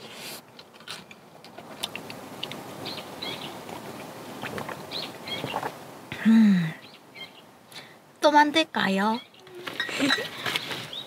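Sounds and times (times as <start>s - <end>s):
outdoor background noise: 0.0s - 11.0s
small birds chirping: 2.8s - 5.8s, 6.7s - 7.9s, 8.8s - 11.0s.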